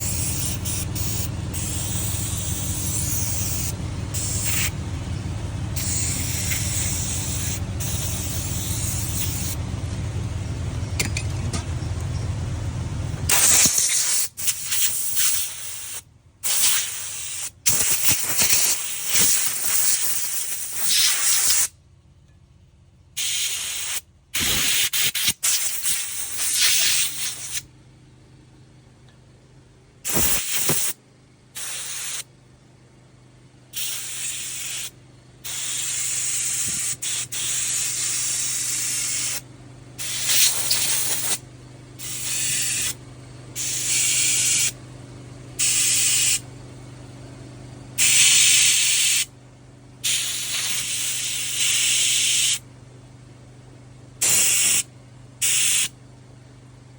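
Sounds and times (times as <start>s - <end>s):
pressurized spray hissing: 0.0s - 4.7s, 5.8s - 9.6s, 13.3s - 21.7s, 23.2s - 27.6s, 30.1s - 31.0s, 31.6s - 32.3s, 33.8s - 39.4s, 40.0s - 41.4s, 42.0s - 43.0s, 43.6s - 44.8s, 45.6s - 46.4s, 48.0s - 49.3s, 50.0s - 52.6s, 54.2s - 54.8s, 55.4s - 55.9s
steady low hum: 0.0s - 56.9s.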